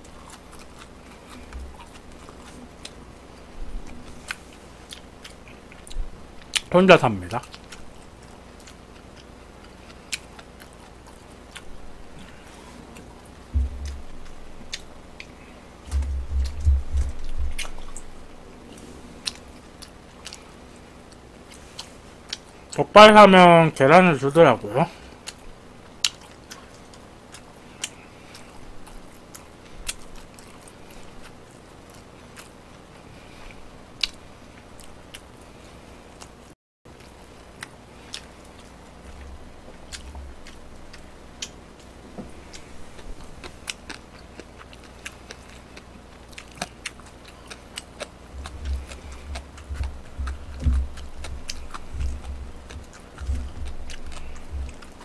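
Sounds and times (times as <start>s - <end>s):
chewing and biting food: 0.0s - 22.8s, 24.9s - 55.0s
heavy low thuds: 13.5s - 14.8s, 15.9s - 18.3s, 48.4s - 54.8s.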